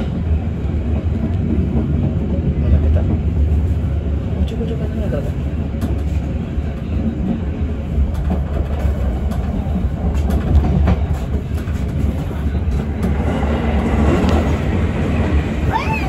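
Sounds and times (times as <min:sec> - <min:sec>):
train wheels rumbling on rails: 0:00.0 - 0:16.0
sharp clicks of train wheels: 0:05.7 - 0:15.4.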